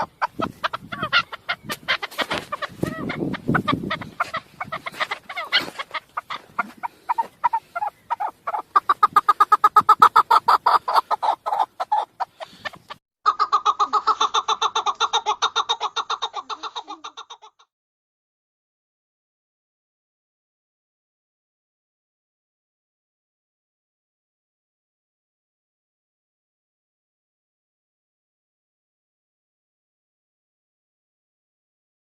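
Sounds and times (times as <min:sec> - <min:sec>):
partridge clucking calls: 0:00.0 - 0:17.7.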